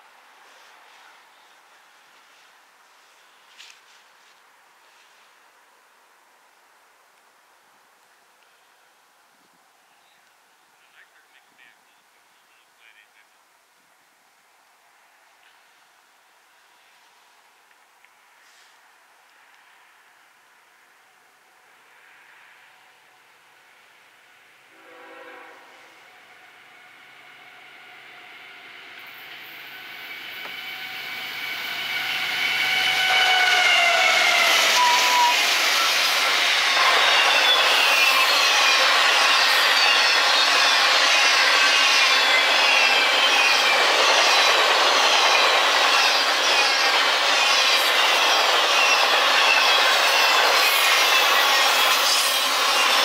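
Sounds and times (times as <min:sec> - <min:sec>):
rush and clatter of passing train: 0:21.5 - 0:53.0
train horn: 0:24.6 - 0:28.4, 0:32.6 - 0:35.4
wheels squealing: 0:29.1 - 0:53.0.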